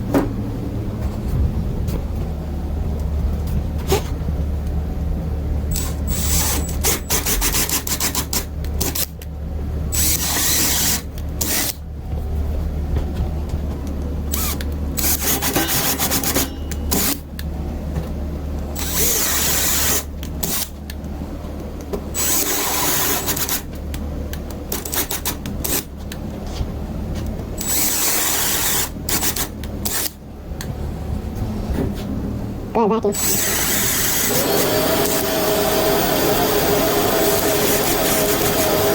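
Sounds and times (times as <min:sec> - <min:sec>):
power drill boring: 0:05.7 - 0:08.0, 0:10.0 - 0:11.7, 0:14.3 - 0:16.4, 0:18.8 - 0:20.6, 0:22.2 - 0:23.6, 0:27.6 - 0:30.1, 0:33.2 - 0:38.9.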